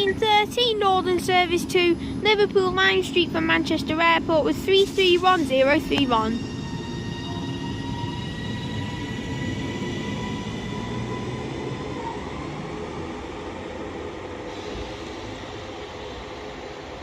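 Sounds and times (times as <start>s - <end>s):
electric train rumble: 0.0s - 17.0s
train motor whine: 4.7s - 17.0s.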